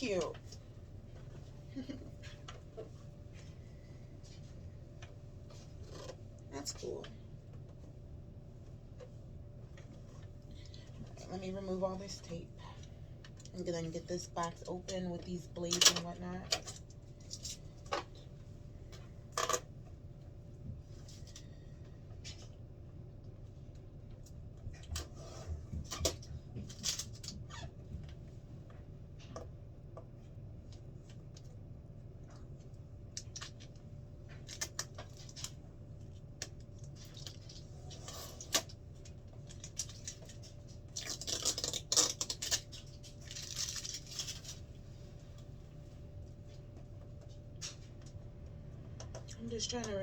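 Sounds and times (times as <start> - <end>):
plastic crinkling: 36.4 - 44.9
packing tape peeling: 39.5 - 44.6.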